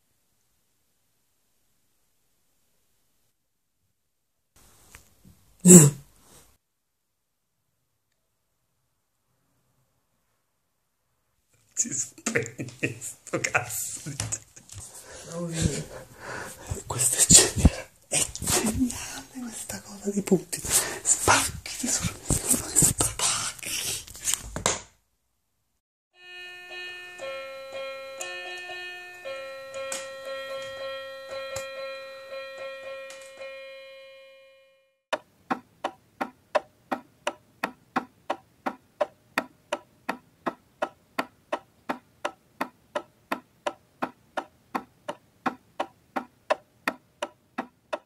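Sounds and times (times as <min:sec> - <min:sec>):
keyboard melody: 0:26.2 - 0:35.0
clock ticking: 0:26.6 - 0:33.6, 0:35.2 - 0:48.0.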